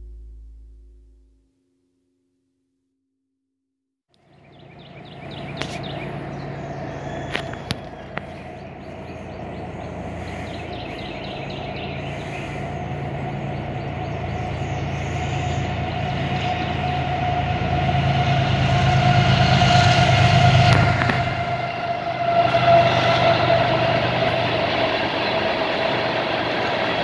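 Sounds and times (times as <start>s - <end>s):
steady whine: 0.0s - 1.3s, 5.0s - 27.0s
diesel locomotive rumble: 4.3s - 27.0s.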